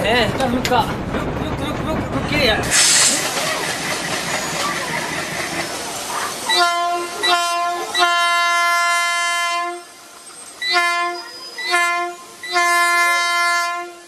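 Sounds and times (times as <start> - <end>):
air hissing: 2.7 - 4.6
train horn blasts: 6.5 - 10.0, 10.6 - 14.0.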